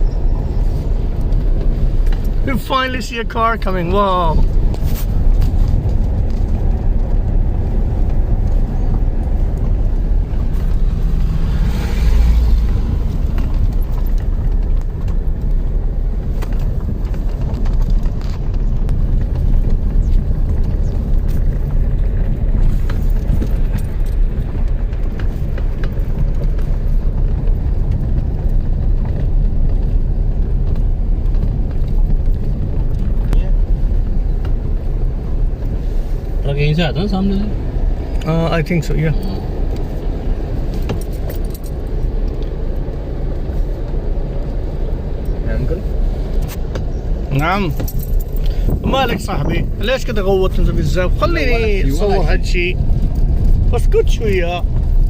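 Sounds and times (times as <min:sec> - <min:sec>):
oncoming car passing: 0:00.0 - 0:16.2
car road and engine rumble: 0:00.0 - 0:55.0.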